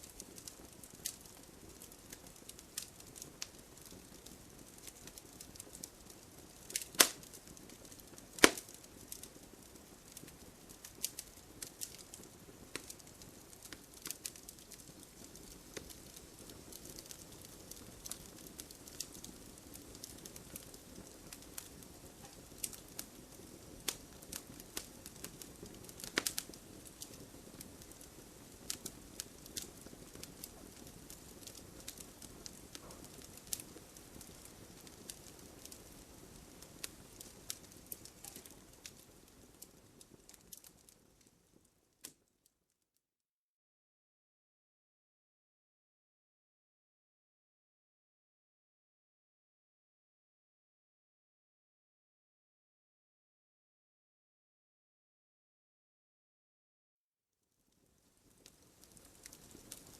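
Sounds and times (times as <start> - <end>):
wood fire crackling and popping: 0.0 - 42.3, 57.9 - 59.9.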